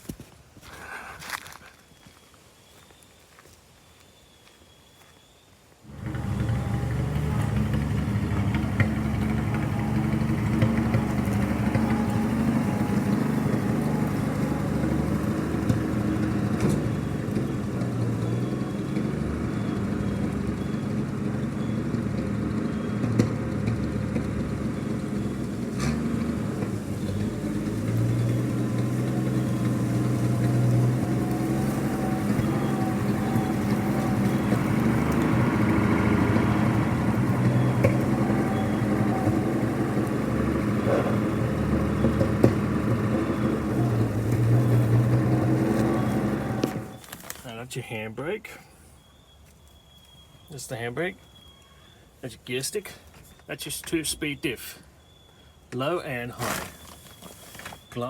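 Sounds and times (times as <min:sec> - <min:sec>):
truck engine running: 0:05.9 - 0:47.6.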